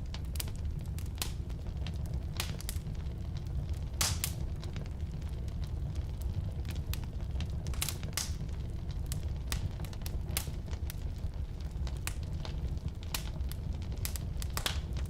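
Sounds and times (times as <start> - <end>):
fire rumbling: 0.0 - 15.0
wood crackling and popping: 0.0 - 15.0.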